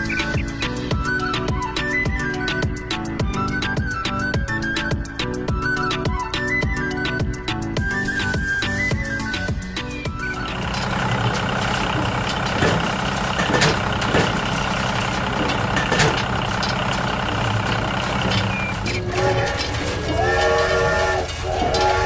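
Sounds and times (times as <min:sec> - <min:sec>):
heavy diesel engine running: 0:10.2 - 0:22.0
horn-like tone: 0:18.6 - 0:22.0.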